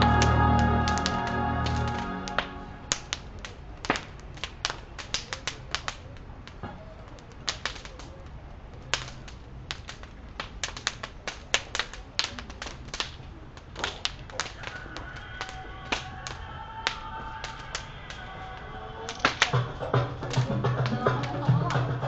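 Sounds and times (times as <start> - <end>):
bonfire crackling: 0.0 - 22.0.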